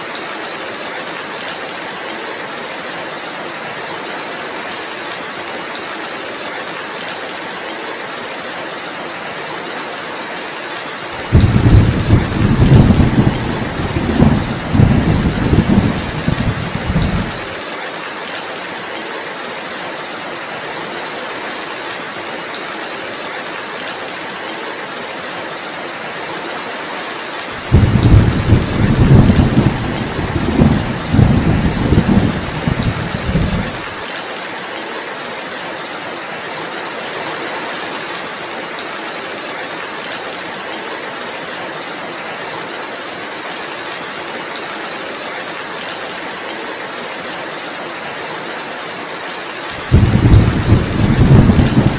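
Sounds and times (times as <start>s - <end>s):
heavy rainfall: 0.0s - 51.9s
thunder rumble: 11.2s - 17.5s, 27.6s - 33.9s, 49.8s - 51.9s.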